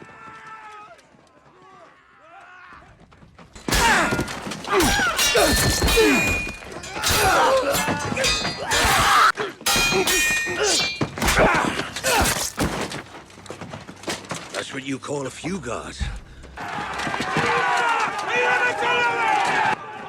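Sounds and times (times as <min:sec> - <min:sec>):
heavy thuds and blows: 0:03.5 - 0:13.2
swords clanging: 0:03.6 - 0:13.0
men grunting and shouting: 0:03.7 - 0:12.6.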